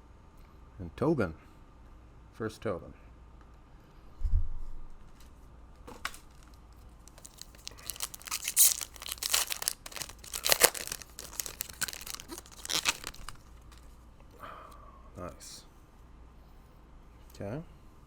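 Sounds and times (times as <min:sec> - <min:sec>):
plastic wrapper tearing and crinkling: 0:06.0 - 0:13.9.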